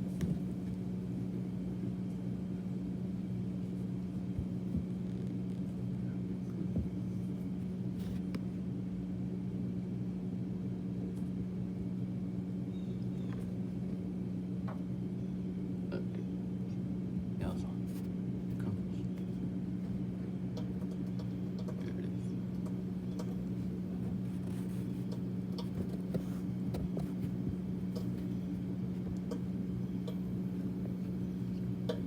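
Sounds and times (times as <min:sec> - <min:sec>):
water heater humming: 0:00.0 - 0:32.0.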